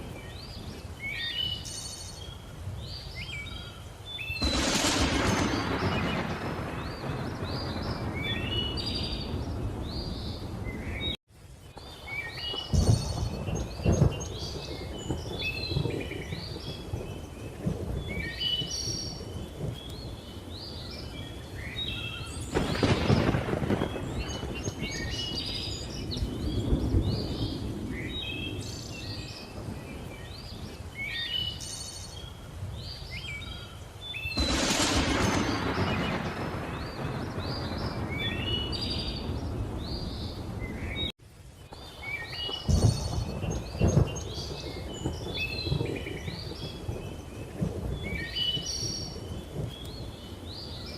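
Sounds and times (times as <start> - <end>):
birds chirping and whistling: 0.2 - 4.6, 12.0 - 22.8, 41.7 - 50.9
thunder rolling: 4.4 - 11.2, 12.6 - 30.8, 34.4 - 41.1, 42.5 - 50.9.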